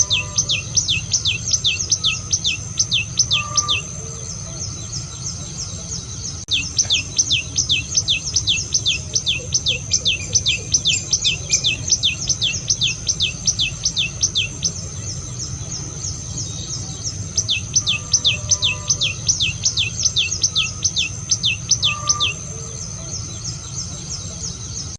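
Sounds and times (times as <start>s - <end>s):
high-pitched drone: 0.0s - 23.4s.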